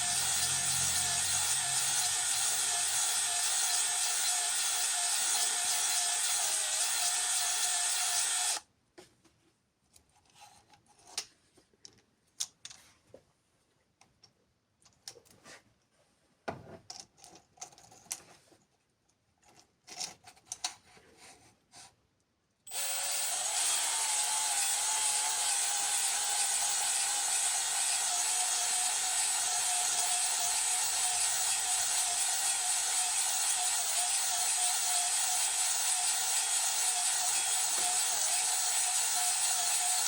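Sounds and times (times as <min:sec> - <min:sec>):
electric drill whining: 0:00.0 - 0:08.6, 0:22.7 - 0:40.0.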